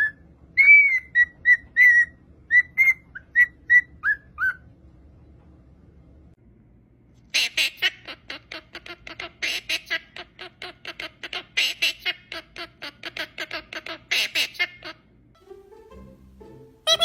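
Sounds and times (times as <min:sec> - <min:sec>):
parrot squawking: 0:07.3 - 0:15.1.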